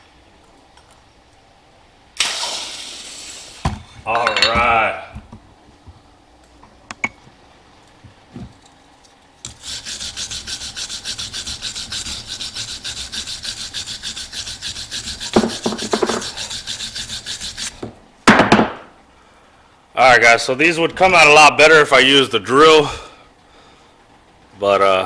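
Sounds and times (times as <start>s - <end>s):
coin scrubbing by hand: 9.5s - 17.8s
knocks: 15.4s - 16.2s, 18.3s - 19.0s.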